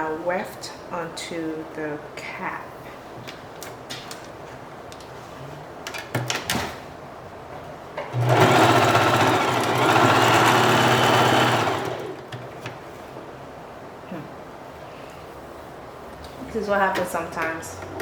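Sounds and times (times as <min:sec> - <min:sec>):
electric sewing machine running: 0:08.1 - 0:12.3.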